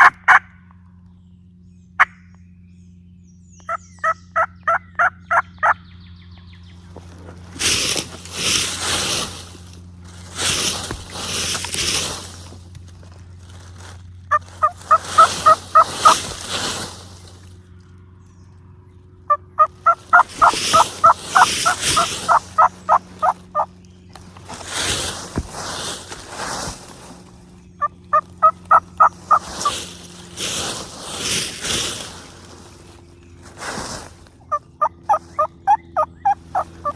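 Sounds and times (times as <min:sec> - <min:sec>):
turkey yelps: 0:00.0 - 0:00.4, 0:03.7 - 0:05.8, 0:14.3 - 0:16.4, 0:19.5 - 0:23.7, 0:27.8 - 0:29.9, 0:34.5 - 0:36.9
turkeys gobbling: 0:00.0 - 0:00.5, 0:03.7 - 0:05.8, 0:14.3 - 0:16.9, 0:19.3 - 0:23.7, 0:27.8 - 0:30.6, 0:34.4 - 0:36.9.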